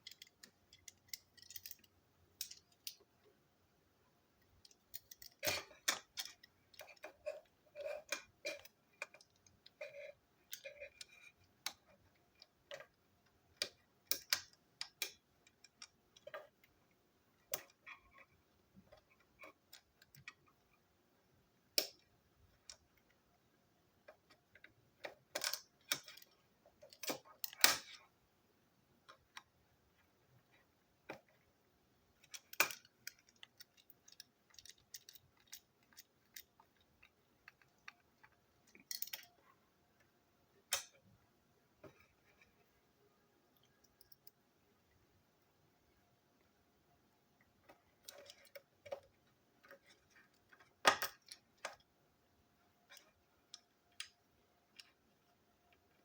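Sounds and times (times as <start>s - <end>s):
plastic toy parts clicking: 0.0s - 3.1s, 4.4s - 16.8s, 21.7s - 23.0s, 24.0s - 28.0s, 32.2s - 39.4s, 47.6s - 51.9s.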